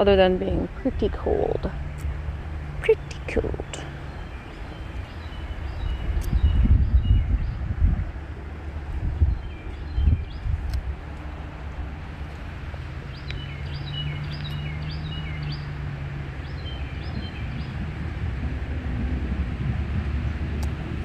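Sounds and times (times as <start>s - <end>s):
steady low hum: 0.0s - 21.0s
wind on microphone: 0.0s - 21.0s
bird chirping: 2.8s - 7.7s, 9.1s - 11.7s, 13.0s - 15.8s, 16.4s - 17.8s.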